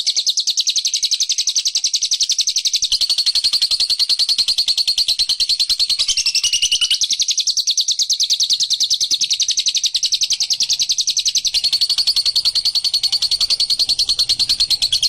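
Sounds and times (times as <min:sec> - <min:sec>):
lovebird trilling: 0:01.9 - 0:15.0.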